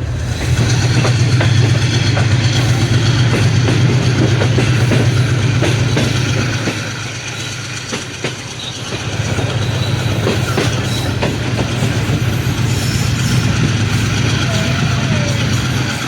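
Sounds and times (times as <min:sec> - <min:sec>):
locomotive engine drone: 0:00.0 - 0:16.0
train wheels clicking on rail joints: 0:00.0 - 0:16.0.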